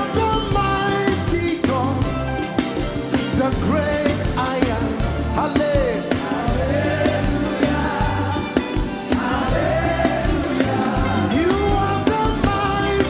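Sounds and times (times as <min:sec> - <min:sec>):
gospel band playing: 0:00.0 - 0:13.0
voices singing: 0:04.8 - 0:13.0.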